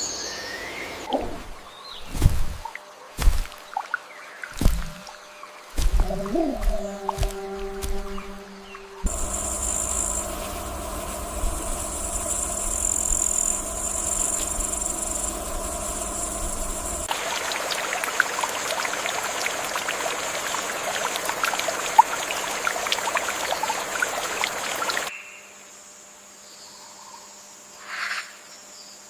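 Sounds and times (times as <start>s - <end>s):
insect drone: 4.5s - 27.9s
low rumble: 5.8s - 17.1s
dense hiss: 8.6s - 17.1s
small chirps and clicks: 9.0s - 17.1s.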